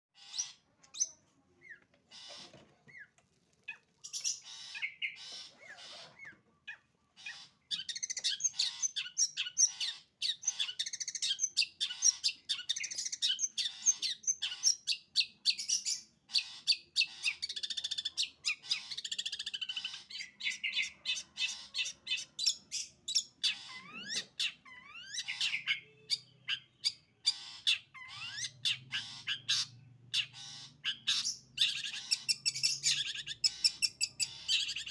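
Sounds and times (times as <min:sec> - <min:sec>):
shrike chattering song: 0:15.9 - 0:34.9.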